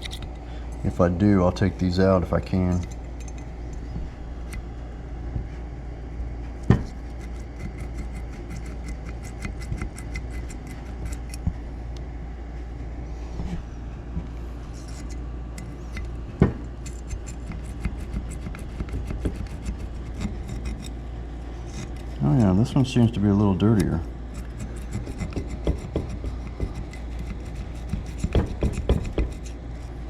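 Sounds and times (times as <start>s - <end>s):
steady low hum: 0.0s - 30.0s
sharp knocks: 28.2s - 29.4s.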